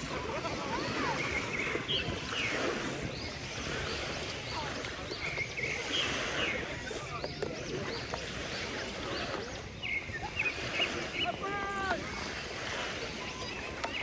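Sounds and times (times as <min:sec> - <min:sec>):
distant voices calling out: 0:00.0 - 0:13.9
sea wash: 0:00.0 - 0:14.0
wind: 0:00.0 - 0:14.0.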